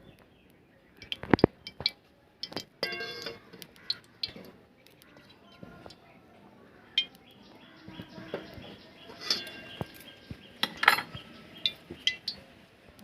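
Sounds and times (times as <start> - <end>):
metal utensils clinking on pans: 1.4 - 4.5, 8.3 - 12.4.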